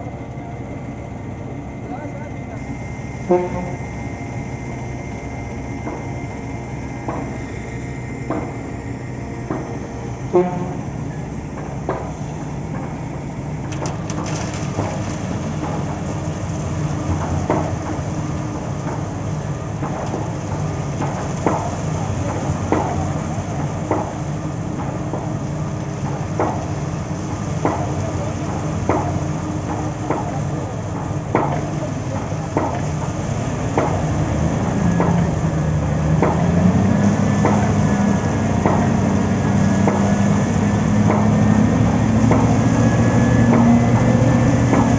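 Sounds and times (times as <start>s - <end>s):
heavy machinery engine running: 0.0s - 44.9s
sharp metallic knocks: 38.6s - 42.7s.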